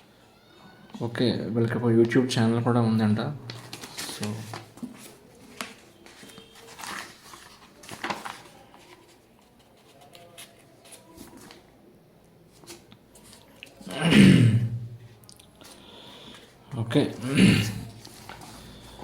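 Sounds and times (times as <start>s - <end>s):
book pages turning: 3.5s - 11.7s, 12.5s - 13.8s, 17.9s - 19.0s.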